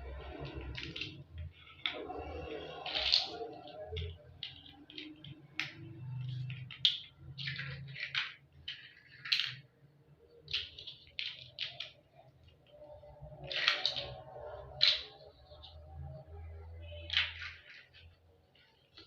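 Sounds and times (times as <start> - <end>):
toy blocks clicking and clattering: 0.0 - 19.0.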